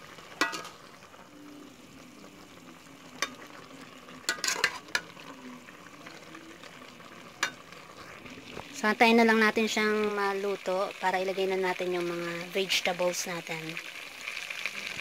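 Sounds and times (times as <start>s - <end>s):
meat frying hiss: 0.0s - 15.0s
metal spoon scraping pot: 0.4s - 0.8s, 4.3s - 5.1s.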